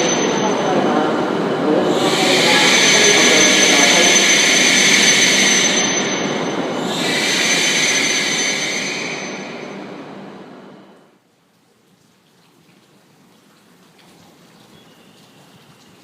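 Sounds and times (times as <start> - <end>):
thin high whine: 0.0 - 11.1
high-speed train passing: 0.0 - 11.2.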